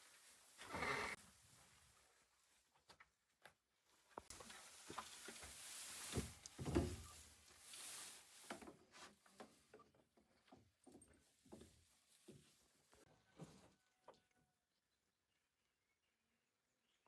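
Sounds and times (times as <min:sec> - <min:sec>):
rustling: 0:04.2 - 0:09.6.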